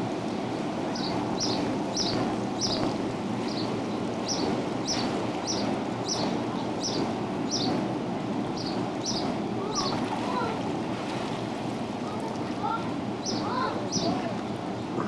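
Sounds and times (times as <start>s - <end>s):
outdoor background noise: 0.0s - 15.0s
bird chirping: 1.0s - 2.9s, 3.5s - 7.8s, 8.6s - 9.9s.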